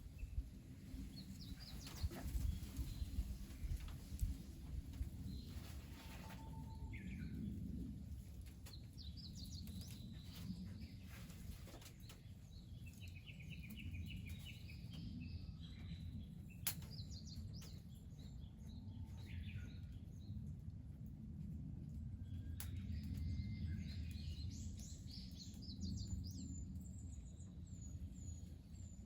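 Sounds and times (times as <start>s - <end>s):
small birds chirping: 0.0s - 7.6s, 8.5s - 20.4s, 22.2s - 29.0s
low steady rumble: 0.0s - 29.0s.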